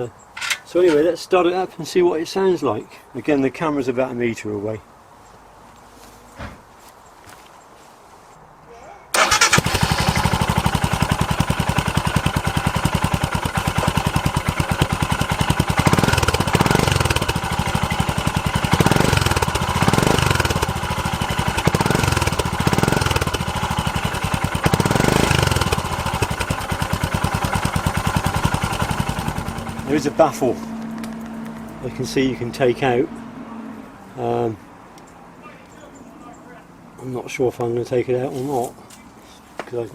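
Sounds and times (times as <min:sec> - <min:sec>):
motorcycle engine idling and revving: 0:09.2 - 0:35.1.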